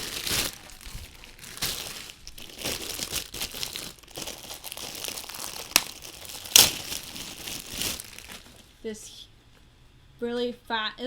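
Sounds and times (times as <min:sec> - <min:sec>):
plastic bags crinkling: 0:00.0 - 0:08.8.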